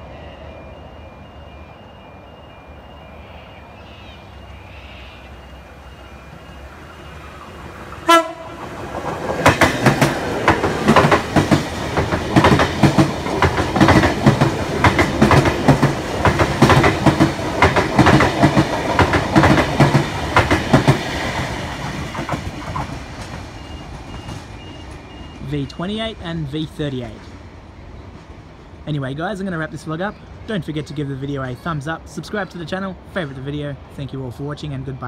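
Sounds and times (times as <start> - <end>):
train running rumble: 6.2 - 29.4
train horn blast: 8.0 - 8.7
train wheels clacking: 8.1 - 25.4.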